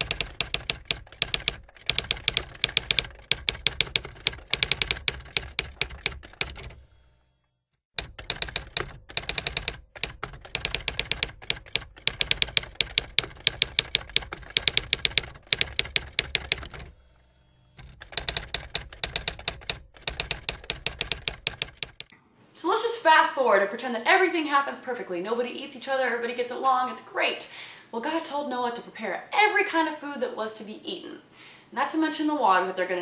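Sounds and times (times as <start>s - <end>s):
rapid keyboard typing: 0.0s - 6.8s, 8.0s - 16.9s, 17.8s - 22.1s.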